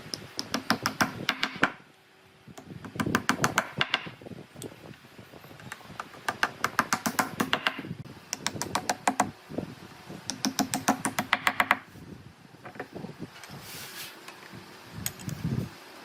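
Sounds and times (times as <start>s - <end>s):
sharp knocks on wood: 2.9s - 4.2s, 6.3s - 7.9s.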